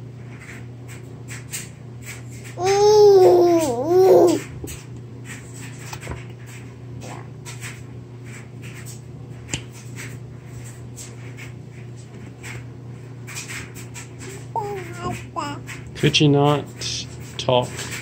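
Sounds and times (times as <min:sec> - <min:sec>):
steady low hum: 0:00.0 - 0:18.0
baby eating clicks and rustles: 0:13.2 - 0:18.0.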